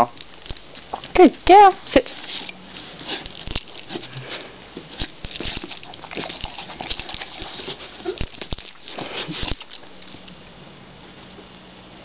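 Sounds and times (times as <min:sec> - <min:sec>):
dog chewing popcorn: 0:00.1 - 0:01.2, 0:02.3 - 0:10.4.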